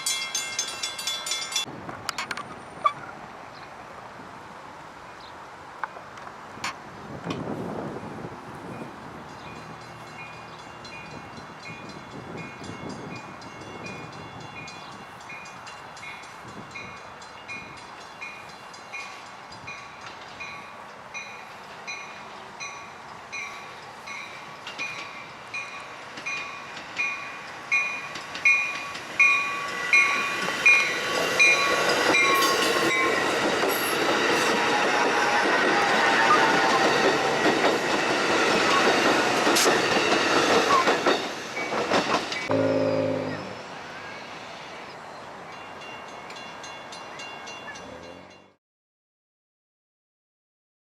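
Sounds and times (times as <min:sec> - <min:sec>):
crossing warning bell dinging: 0:00.0 - 0:01.7, 0:08.0 - 0:44.8, 0:45.4 - 0:48.6
train rumble and wheel noise: 0:00.0 - 0:48.5.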